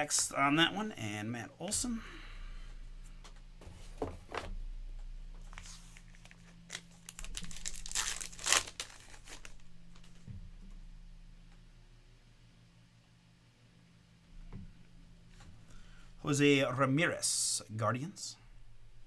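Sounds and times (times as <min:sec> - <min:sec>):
low electrical hum: 0:00.0 - 0:19.0
cards and wrapper crinkling: 0:05.5 - 0:10.2.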